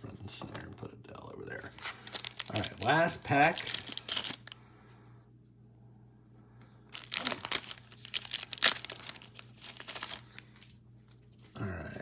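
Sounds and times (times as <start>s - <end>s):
faint low hum: 0.0s - 12.0s
foil wrapper tearing and crinkling: 1.8s - 4.6s, 6.9s - 10.8s.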